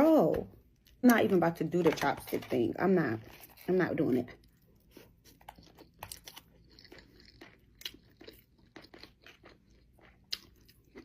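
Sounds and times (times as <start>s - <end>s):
wet chewing crunches: 3.2s - 11.0s.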